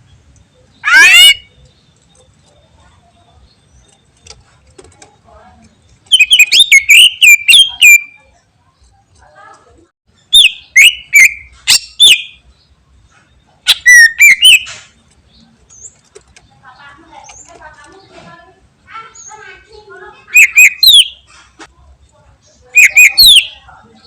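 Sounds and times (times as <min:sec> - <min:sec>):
bird singing whistled notes: 0:00.5 - 0:01.8, 0:06.0 - 0:08.3, 0:10.2 - 0:12.5, 0:13.5 - 0:14.8, 0:20.3 - 0:21.2, 0:22.8 - 0:24.0.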